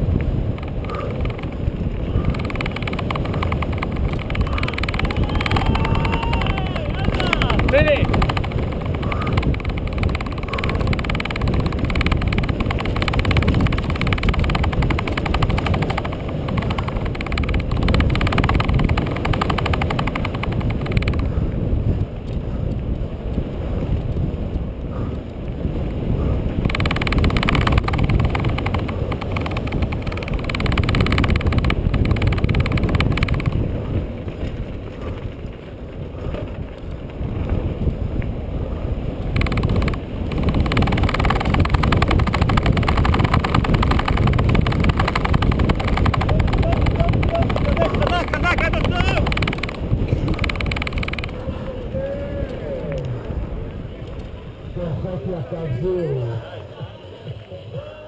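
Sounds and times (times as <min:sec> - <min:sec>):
wind buffeting microphone: 0:00.0 - 0:58.0
rattling and clatter: 0:00.4 - 0:06.1, 0:06.7 - 0:21.3, 0:26.7 - 0:36.6, 0:39.3 - 0:51.4.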